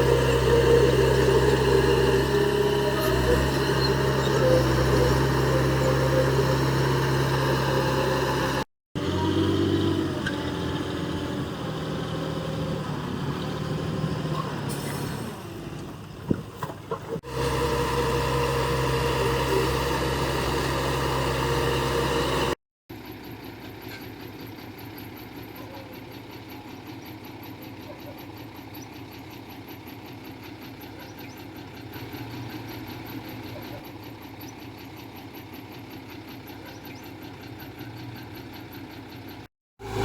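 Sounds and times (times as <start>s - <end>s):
heavy diesel engine running: 0.0s - 40.0s.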